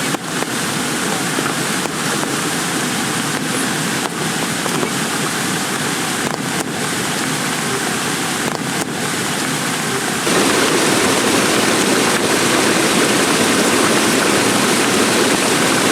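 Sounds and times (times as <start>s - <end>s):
heavy rain pouring: 10.3s - 15.9s.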